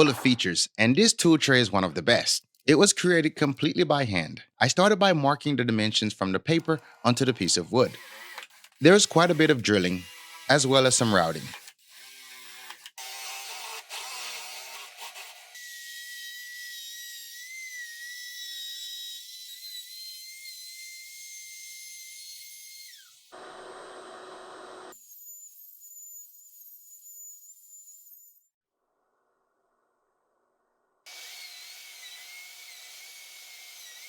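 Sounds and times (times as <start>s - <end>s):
power tool motor whining: 7.4s - 15.5s, 23.2s - 25.0s.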